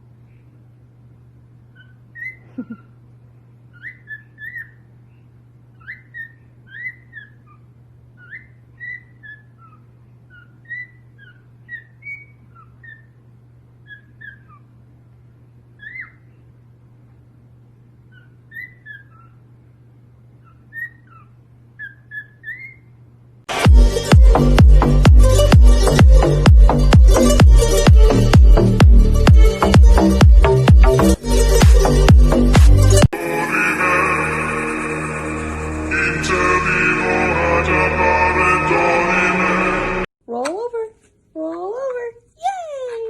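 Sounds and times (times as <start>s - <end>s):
steady low hum: 0.0s - 42.8s
parrot whistling: 1.8s - 2.4s, 3.8s - 4.9s, 5.8s - 7.6s, 8.2s - 13.2s, 15.8s - 16.3s, 18.1s - 19.4s, 20.4s - 22.9s.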